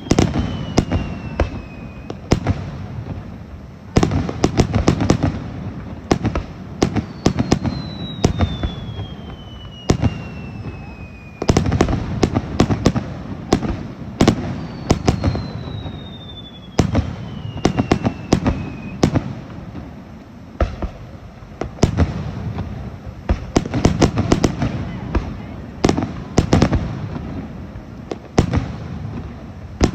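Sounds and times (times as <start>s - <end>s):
falling whistling tone: 0.0s - 2.3s, 7.0s - 11.6s, 14.5s - 19.0s
fireworks bursting and crackling: 0.0s - 29.9s.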